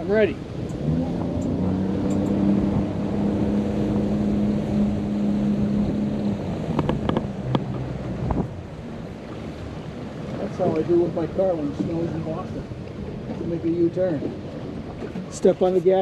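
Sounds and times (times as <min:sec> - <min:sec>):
wind noise: 0:00.0 - 0:09.4
motorboat engine drone: 0:00.0 - 0:15.9
water noise: 0:00.0 - 0:16.0.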